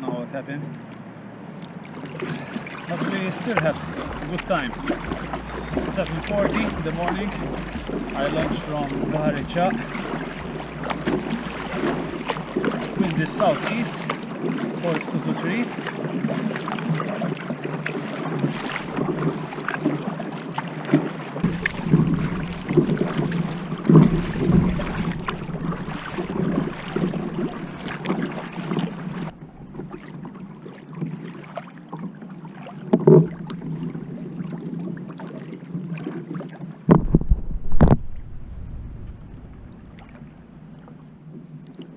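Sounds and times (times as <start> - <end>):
water lapping against kayak hull: 0.0 - 41.9
wind on microphone: 3.5 - 14.2, 18.4 - 19.7, 21.4 - 30.0, 36.9 - 41.2
single thump: 36.9 - 40.4.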